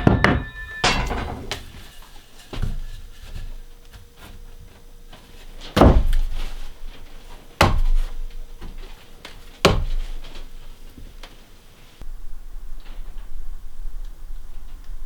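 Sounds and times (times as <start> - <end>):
heavy thuds of wood struck: 5.8 - 6.3, 7.6 - 8.2.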